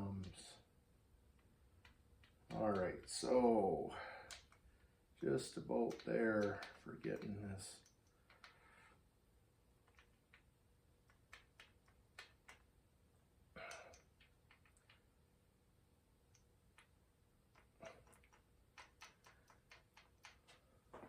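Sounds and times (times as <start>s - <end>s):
clicks and taps of hand tools: 5.6s - 8.6s.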